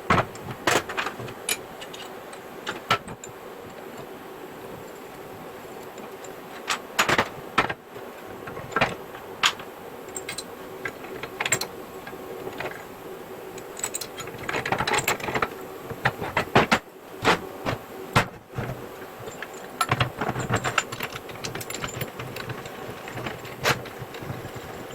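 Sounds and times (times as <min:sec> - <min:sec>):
faint steady hum: 0:00.0 - 0:24.9
steel parts clicking and rattling: 0:00.1 - 0:03.4, 0:08.5 - 0:12.9, 0:13.5 - 0:24.9.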